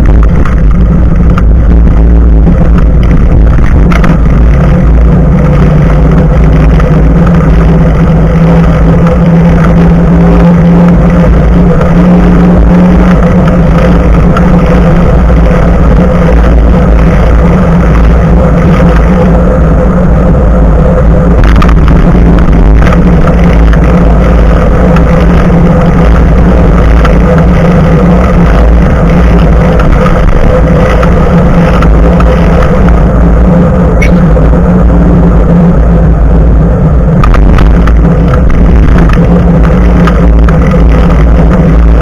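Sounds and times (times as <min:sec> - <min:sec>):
bicycle tyre rolling on road: 0:00.0 - 0:42.0
wind rumble on microphone: 0:00.0 - 0:42.0.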